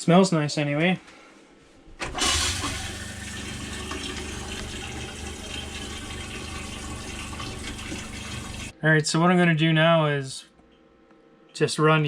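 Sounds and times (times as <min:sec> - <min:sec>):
water rushing through plumbing: 0:02.0 - 0:08.7.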